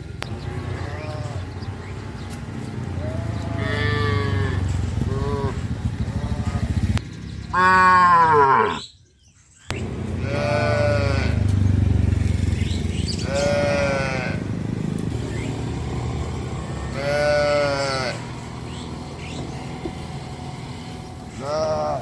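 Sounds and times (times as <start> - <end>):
low steady rumble: 0.0 - 7.5, 9.7 - 22.0
cattle calling: 0.3 - 2.0, 2.9 - 6.9, 7.5 - 8.9, 9.8 - 11.5, 13.1 - 14.6, 16.2 - 22.0.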